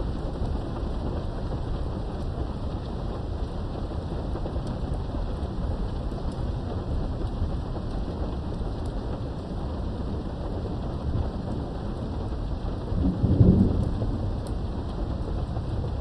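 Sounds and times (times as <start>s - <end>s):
rain behind a window: 0.0s - 16.0s
thunder rolling: 10.0s - 16.0s.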